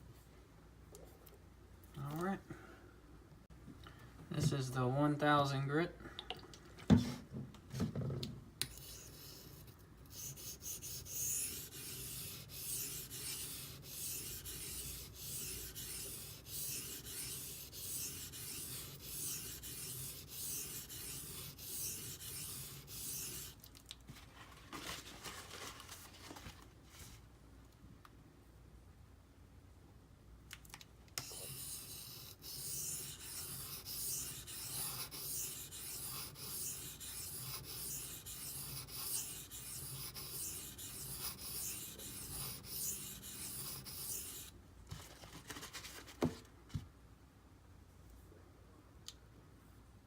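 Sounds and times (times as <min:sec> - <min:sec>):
knife scraping on sharpening stone: 0:08.7 - 0:23.6, 0:31.2 - 0:44.5.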